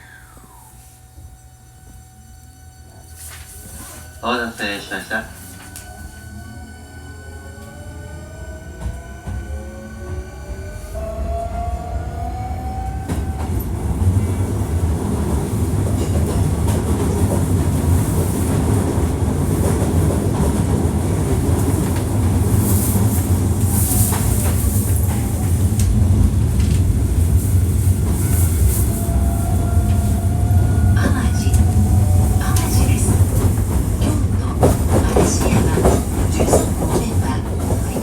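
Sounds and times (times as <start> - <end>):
train motor whine: 0.0 - 38.0
train wheels rumbling on rail: 0.5 - 38.0
clickety-clack of rail joints: 8.7 - 11.1, 12.8 - 38.0.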